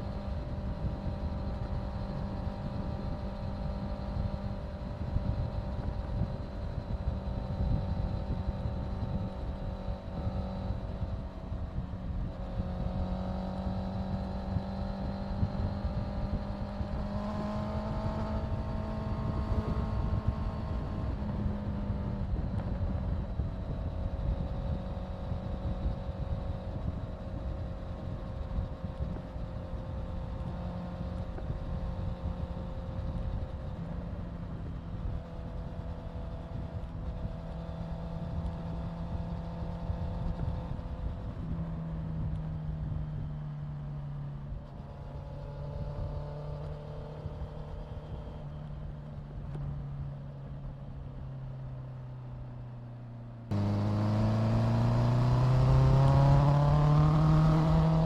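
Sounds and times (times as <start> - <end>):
wind rush on microphone: 0.0 - 43.4
motorcycle engine running: 0.0 - 58.0.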